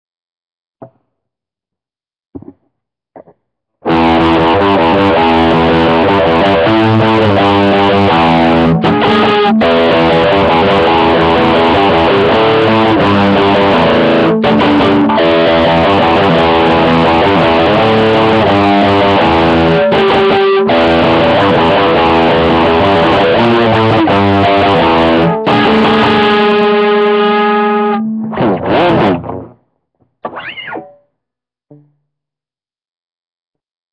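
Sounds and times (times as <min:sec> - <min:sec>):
distorted electric guitar riff: 0:03.8 - 0:29.6.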